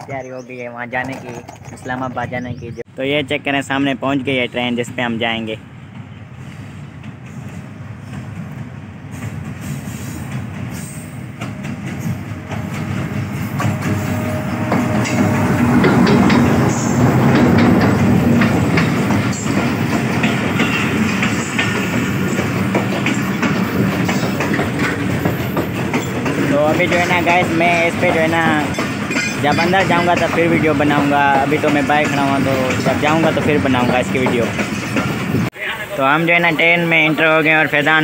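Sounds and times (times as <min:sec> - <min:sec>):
wheels clicking over rail joints: 0:00.8 - 0:02.2, 0:14.7 - 0:35.4
diesel locomotive passing: 0:02.9 - 0:38.0.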